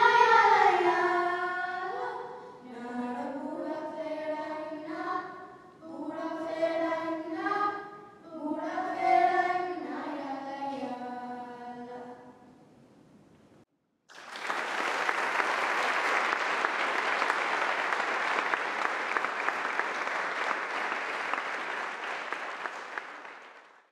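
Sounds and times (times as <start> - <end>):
audience applauding: 14.1 - 23.9.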